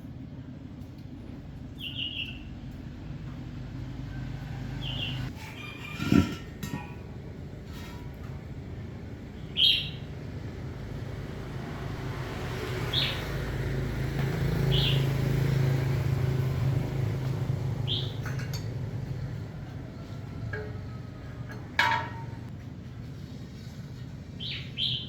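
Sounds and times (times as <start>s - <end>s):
low engine hum: 0.0s - 24.9s
bird chirps: 1.8s - 2.5s, 9.4s - 10.1s, 17.8s - 18.4s.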